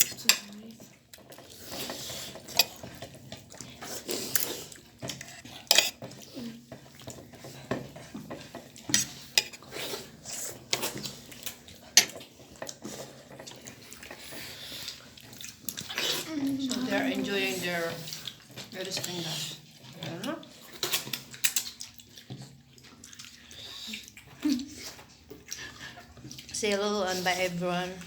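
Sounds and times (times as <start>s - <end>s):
cutlery clinking on plates: 1.8s - 3.0s, 5.1s - 6.2s, 7.0s - 9.8s, 11.9s - 13.7s.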